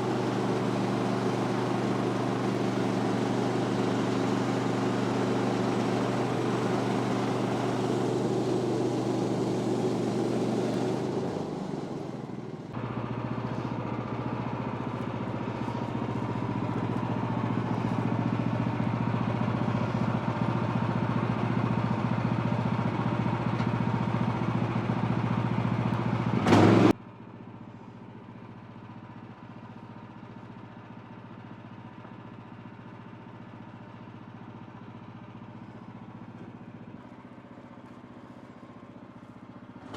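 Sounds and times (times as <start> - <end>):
gas engine running: 0.0 - 27.0, 35.2 - 39.9.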